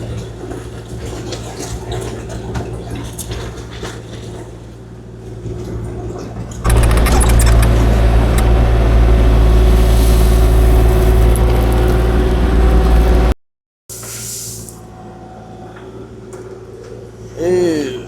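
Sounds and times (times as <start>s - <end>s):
excavator diesel engine running: 6.6s - 13.4s.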